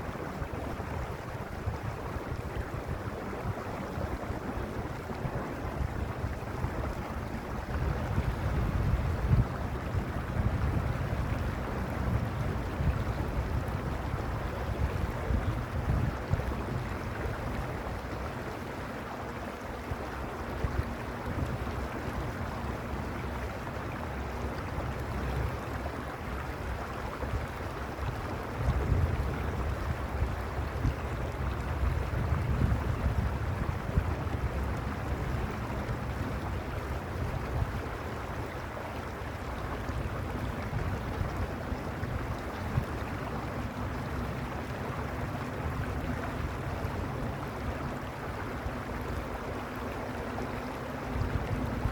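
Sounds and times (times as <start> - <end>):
wind rumble on microphone: 0.0 - 51.9
mountain stream rushing: 33.2 - 51.9.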